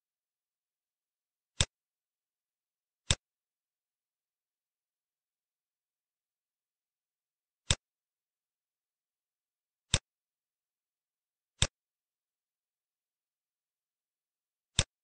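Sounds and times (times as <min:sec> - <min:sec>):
computer mouse clicks: 0:03.0 - 0:03.3, 0:07.6 - 0:07.9, 0:09.9 - 0:10.1, 0:11.6 - 0:11.8, 0:14.7 - 0:15.0.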